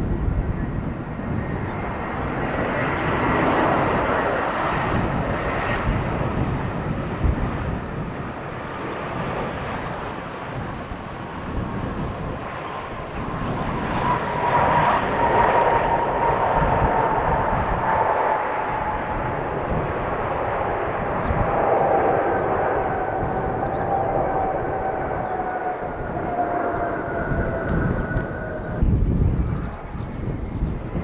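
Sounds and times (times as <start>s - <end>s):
jet engines roaring and whining: 0.0s - 31.0s.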